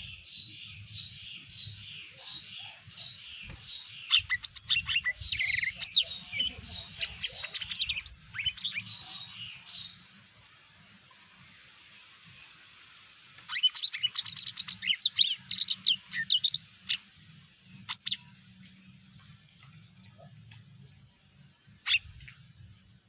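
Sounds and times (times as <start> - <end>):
bird singing chirps and whistles: 0.0 - 10.0, 13.5 - 17.0, 17.9 - 18.2.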